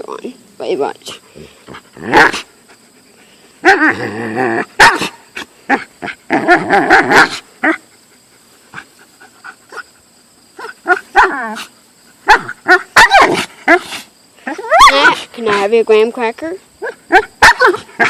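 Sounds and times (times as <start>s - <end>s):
dog barking: 2.1s - 2.5s, 4.8s - 5.8s, 6.9s - 7.8s, 10.6s - 11.6s, 12.2s - 13.8s, 14.5s - 15.3s, 16.8s - 18.0s
dog whining yowls: 3.6s - 7.8s, 10.6s - 11.7s, 12.3s - 13.8s, 14.4s - 15.3s, 16.8s - 18.0s.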